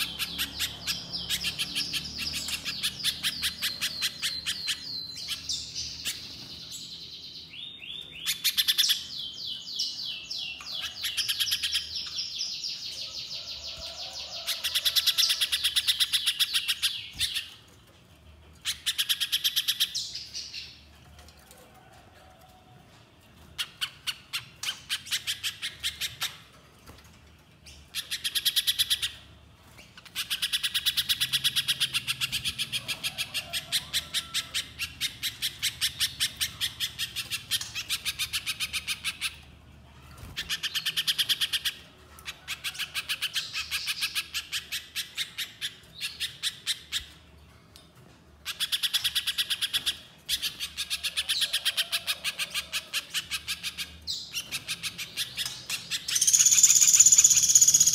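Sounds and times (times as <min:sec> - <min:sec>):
bird calling with fast trills: 0:48.5 - 0:57.9.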